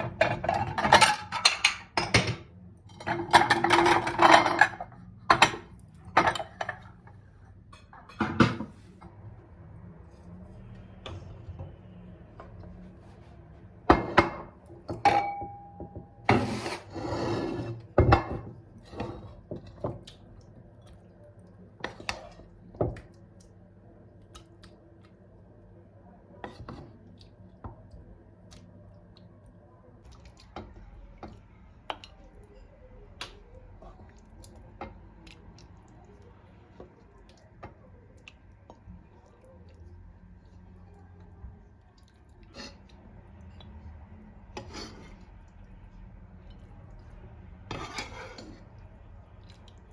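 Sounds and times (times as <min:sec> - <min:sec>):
dishes and utensils clinking: 0:00.0 - 0:08.8, 0:13.9 - 0:16.9.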